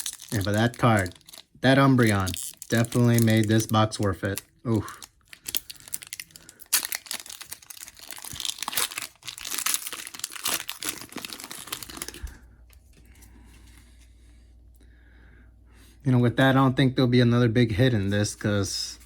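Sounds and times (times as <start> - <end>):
foil wrapper crinkling and tearing: 0.0 - 12.4.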